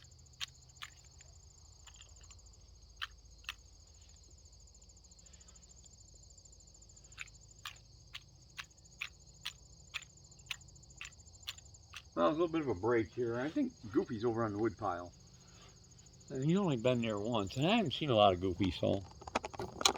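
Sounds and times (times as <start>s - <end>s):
insects trilling: 0.0s - 19.9s.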